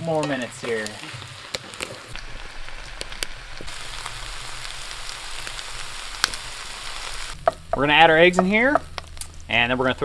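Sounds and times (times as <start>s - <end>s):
food sizzling in a skillet: 0.0s - 9.5s
fat popping: 7.3s - 9.5s.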